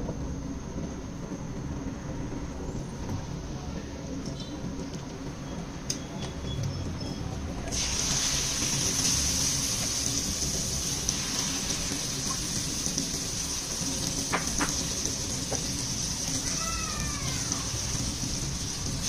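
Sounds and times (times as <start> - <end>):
hot oil sizzling: 7.7 - 19.0.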